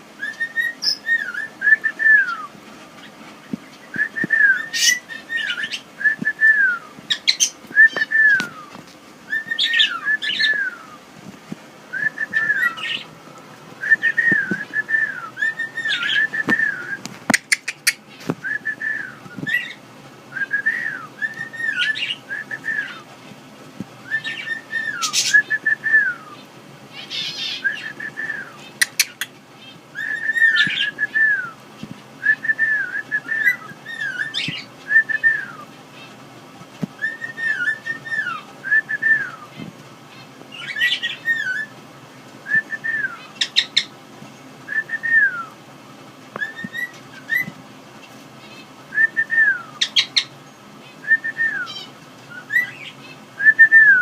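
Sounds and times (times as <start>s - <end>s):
cockatiel whistling: 0.2s - 2.5s, 3.9s - 11.0s, 11.9s - 13.1s, 13.8s - 23.0s, 24.0s - 26.4s, 27.2s - 29.2s, 30.0s - 31.6s, 32.2s - 35.6s, 37.0s - 39.5s, 40.6s - 41.7s, 42.5s - 43.9s, 46.4s - 47.5s, 48.9s - 50.3s, 51.0s - 54.0s.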